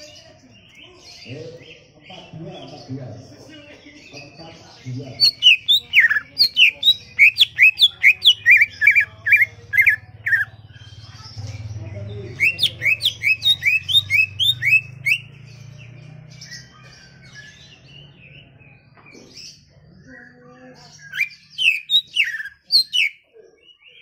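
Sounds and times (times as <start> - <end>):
bird twittering: 4.1 - 24.0
bird singing whistled notes: 12.4 - 15.5, 20.9 - 23.2.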